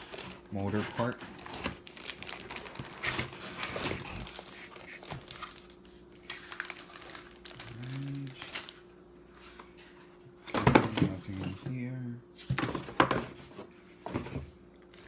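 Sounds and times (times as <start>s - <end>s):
packaging rustling: 0.0s - 9.7s.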